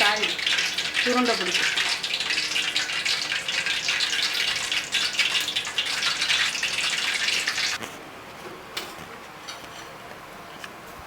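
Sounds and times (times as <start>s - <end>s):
hot oil sizzling in a pan: 0.0s - 7.8s.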